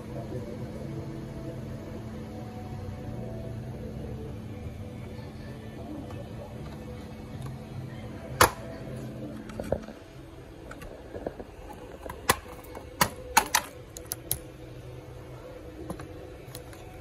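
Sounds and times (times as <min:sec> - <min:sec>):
clicks of small hard parts: 0:12.1 - 0:14.4.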